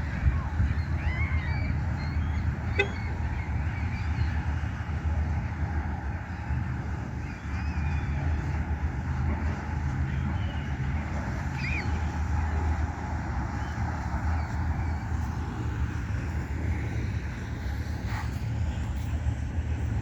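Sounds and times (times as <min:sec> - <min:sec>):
engine droning: 0:00.0 - 0:20.0
birds chirping: 0:00.7 - 0:04.8.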